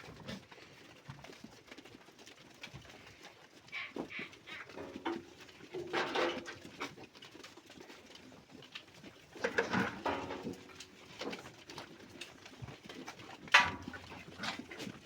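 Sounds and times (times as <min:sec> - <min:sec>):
animal calls: 0:03.6 - 0:05.3.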